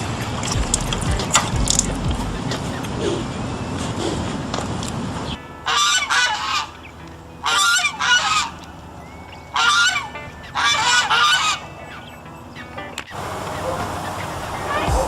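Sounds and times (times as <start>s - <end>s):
geese honking: 5.3s - 15.0s.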